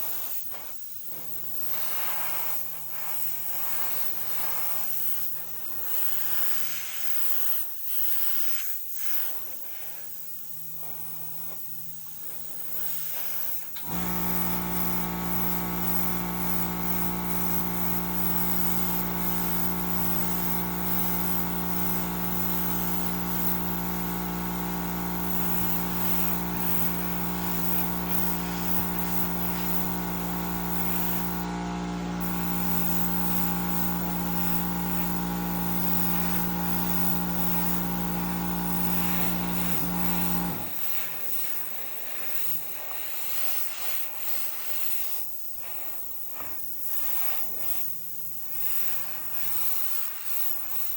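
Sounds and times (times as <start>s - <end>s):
air compressor humming: 13.8s - 40.8s.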